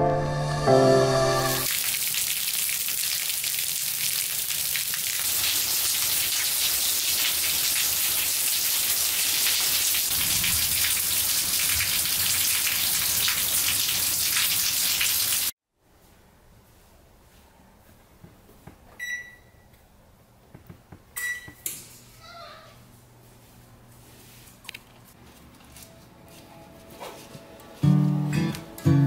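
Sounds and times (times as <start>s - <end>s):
rain on concrete and leaves: 1.6s - 15.5s.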